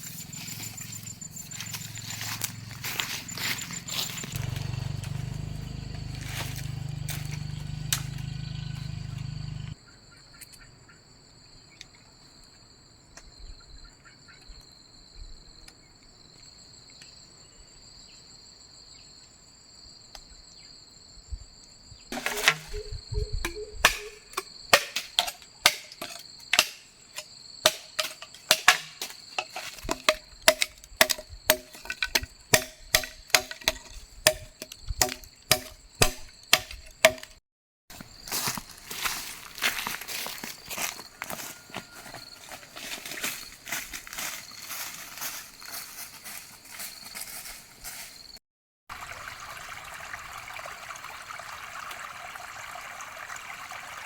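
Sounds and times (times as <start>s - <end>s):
crickets trilling: 0.0s - 48.4s
wood chopping knocks: 22.2s - 26.8s, 27.7s - 37.4s.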